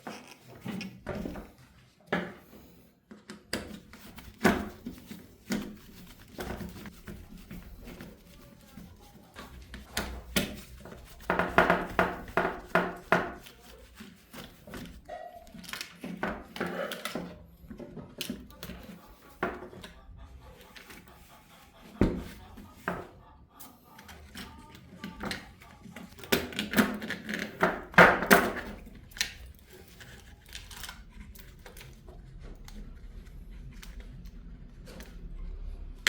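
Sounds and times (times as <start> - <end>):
hard objects knocking and clattering: 9.6 - 13.5, 24.3 - 30.0.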